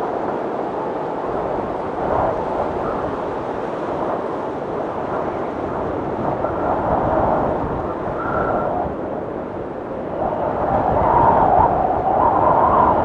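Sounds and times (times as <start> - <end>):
snowstorm wind rushing: 0.0 - 13.0
faint thin wind whistle: 4.0 - 9.3, 9.9 - 13.0.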